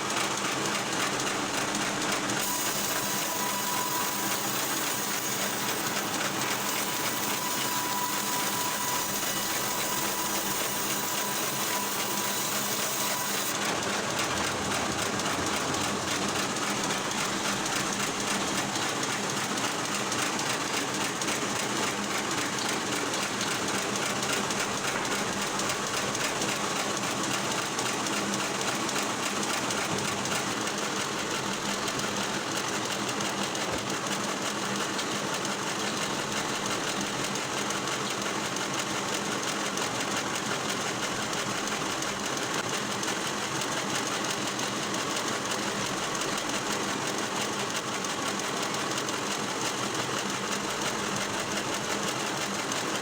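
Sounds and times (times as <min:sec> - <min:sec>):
machinery clattering: 0:02.4 - 0:27.0
low machine hum: 0:06.6 - 0:19.0.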